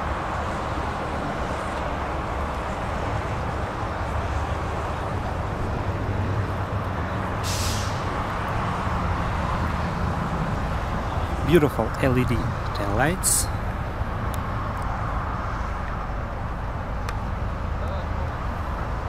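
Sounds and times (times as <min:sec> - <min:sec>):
brief hiss: 0:07.4 - 0:08.0.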